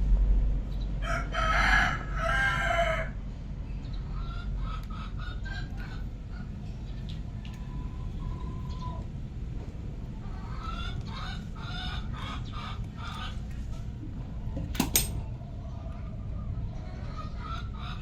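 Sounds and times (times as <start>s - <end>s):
chickens clucking: 3.7s - 14.4s, 15.3s - 18.0s.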